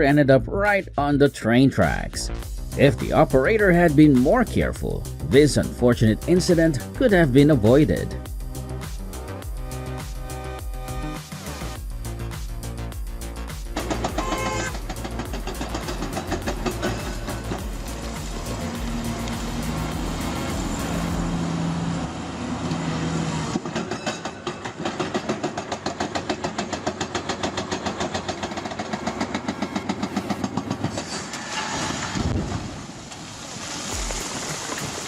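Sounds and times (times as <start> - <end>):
heavy vehicle engine hum: 11.6 - 23.9.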